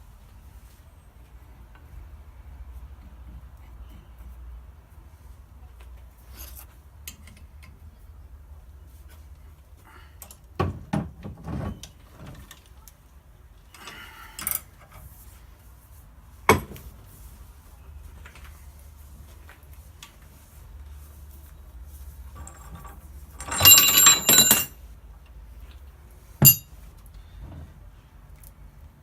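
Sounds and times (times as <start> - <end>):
knocks and clinks of small parts: 22.3 - 24.8, 26.4 - 26.8.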